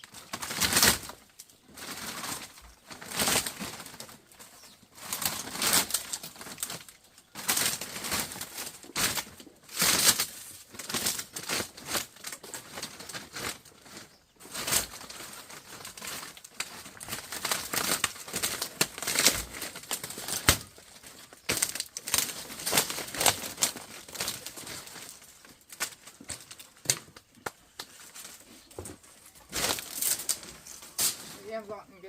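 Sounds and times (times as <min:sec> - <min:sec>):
wood rustling crackling and snapping: 0:00.0 - 0:31.7.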